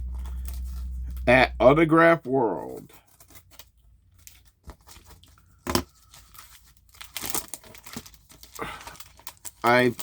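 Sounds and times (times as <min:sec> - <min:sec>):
packaging crinkling and tearing: 0:02.6 - 0:10.0.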